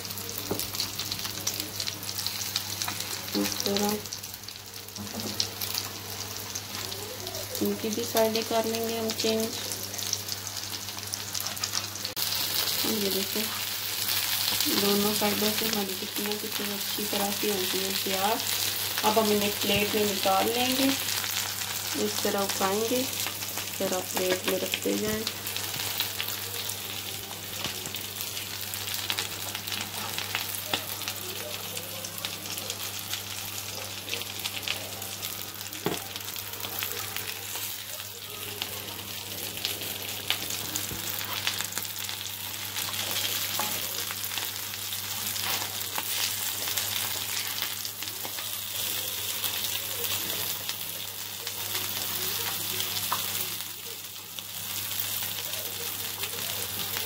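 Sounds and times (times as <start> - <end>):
food sizzling in oil: 0.0 - 57.0.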